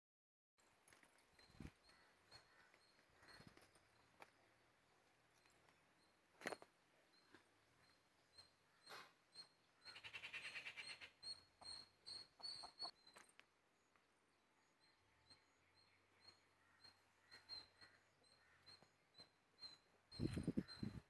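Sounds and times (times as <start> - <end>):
bird chirping: 0.6 - 21.0
bird trill: 5.4 - 13.3, 14.7 - 21.0.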